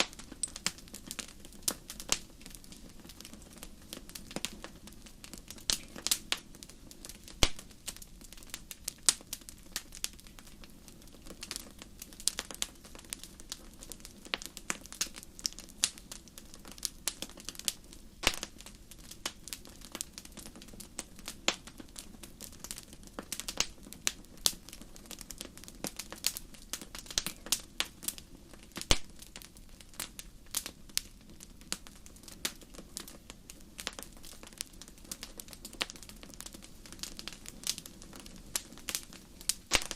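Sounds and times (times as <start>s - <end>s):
pops and snaps of fire: 0.0s - 39.9s
wood fire crackling: 0.0s - 39.9s.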